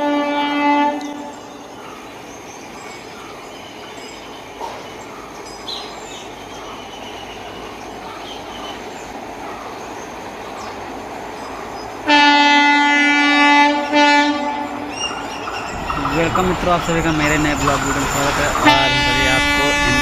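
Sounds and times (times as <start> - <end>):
locomotive horn blasts: 0.0 - 1.4, 12.0 - 20.0
train running noise: 0.0 - 20.0.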